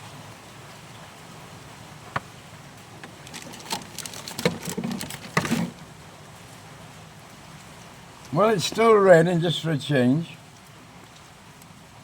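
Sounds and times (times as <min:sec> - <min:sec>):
metal panel clattering and rattling: 0:03.0 - 0:05.8.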